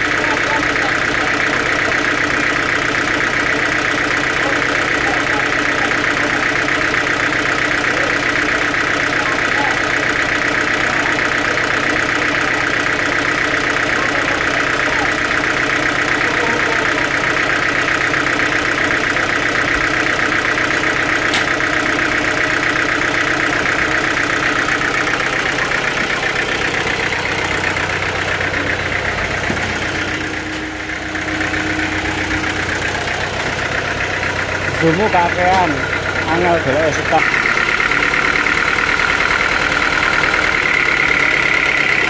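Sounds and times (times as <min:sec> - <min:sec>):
high machine whine: 0:00.0 - 0:42.0
sawmill machinery drone: 0:00.0 - 0:42.0
low machine hum: 0:14.1 - 0:41.8.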